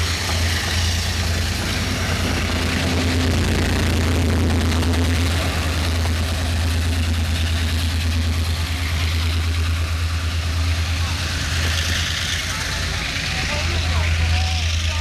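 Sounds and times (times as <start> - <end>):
steam train rumbling: 0.0 - 15.0.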